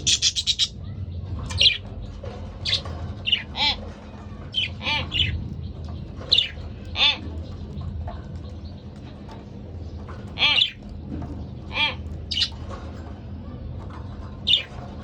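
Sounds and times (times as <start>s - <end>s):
budgerigars chirping and squawking: 0.0s - 2.0s, 2.6s - 5.5s, 6.1s - 7.8s, 10.0s - 10.9s, 11.6s - 12.8s, 14.2s - 15.0s.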